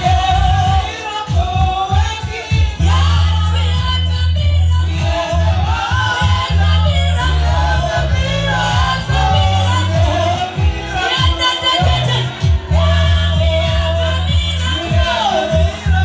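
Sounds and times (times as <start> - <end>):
steady bass line: 0.0 - 16.0
voices singing worship music: 0.0 - 16.0.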